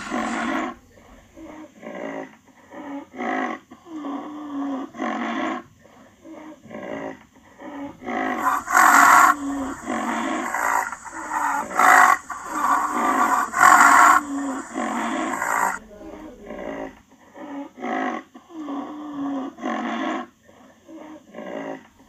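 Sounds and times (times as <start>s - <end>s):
rhinoceros grunts and calls: 8.3s - 15.8s.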